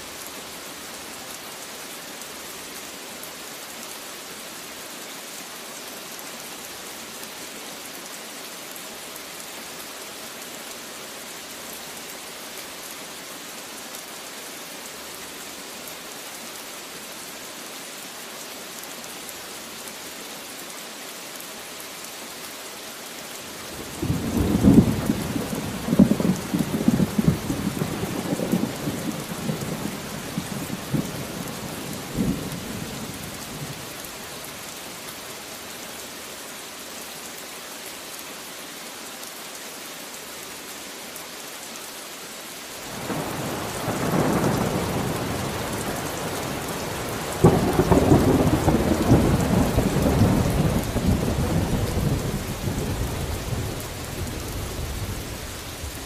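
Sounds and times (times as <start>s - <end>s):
rain hissing: 19.0s - 38.4s, 41.9s - 56.0s.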